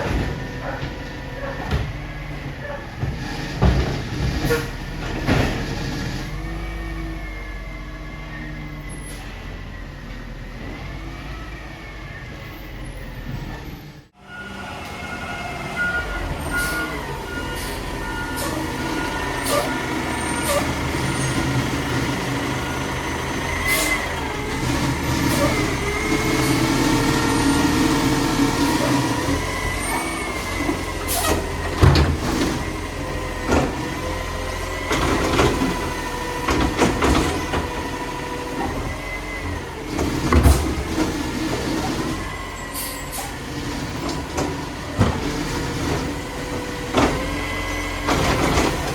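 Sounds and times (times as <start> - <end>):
garbage truck engine running: 0.0 - 48.9
hydraulic whine: 0.0 - 48.9.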